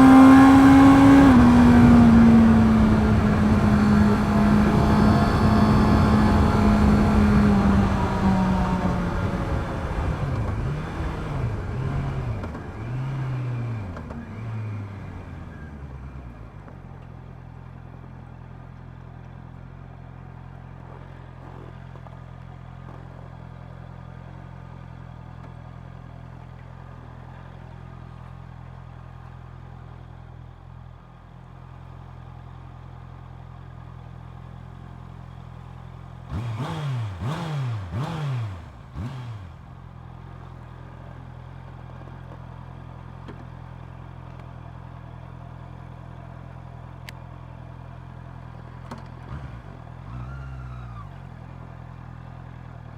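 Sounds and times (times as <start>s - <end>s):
motorcycle engine revving: 0.0s - 16.4s, 35.3s - 42.4s, 48.4s - 52.9s
motorcycle engine slowing and idling: 0.0s - 52.9s.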